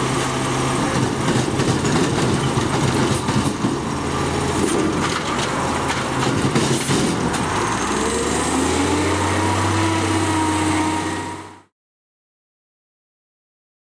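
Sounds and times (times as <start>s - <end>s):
garbage truck diesel engine: 0.0s - 11.7s
metallic clatter and knocks: 0.9s - 3.9s, 4.6s - 7.5s
hydraulic whine rising: 7.3s - 11.7s.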